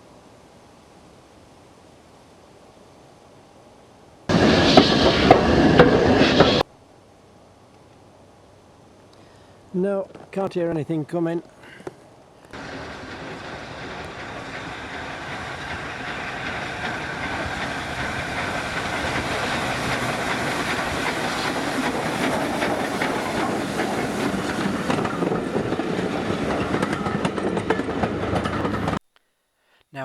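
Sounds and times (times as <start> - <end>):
train approaching: 4.3 - 6.7, 12.5 - 29.0
wheels clicking over rail joints: 11.4 - 29.0.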